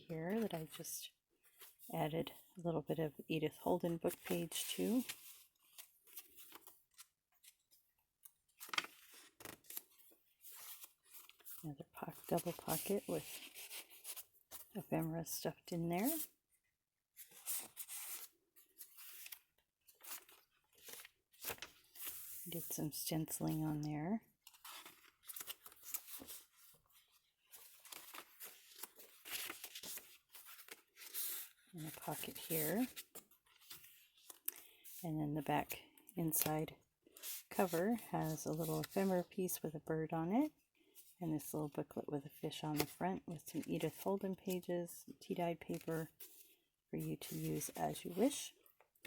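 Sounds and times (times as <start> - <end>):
paper rustling: 8.5 - 14.7, 17.2 - 22.7, 24.4 - 35.0.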